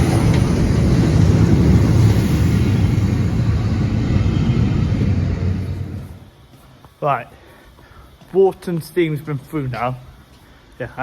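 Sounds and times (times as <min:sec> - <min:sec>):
train wheels rumbling on rail: 0:00.0 - 0:06.4.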